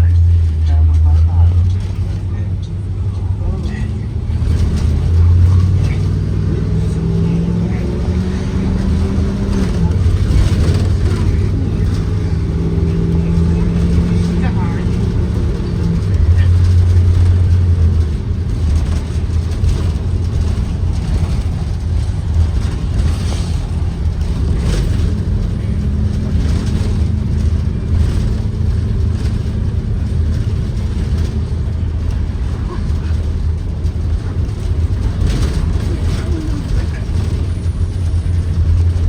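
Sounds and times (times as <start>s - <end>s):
bus engine rumbling: 0.0s - 39.0s.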